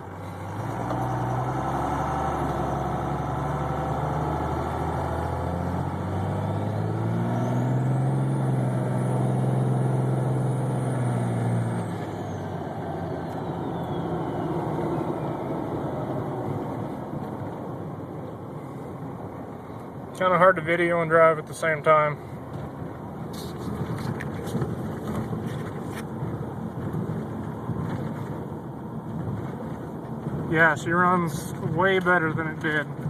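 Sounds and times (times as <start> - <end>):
diesel engine accelerating: 0.0 - 33.0.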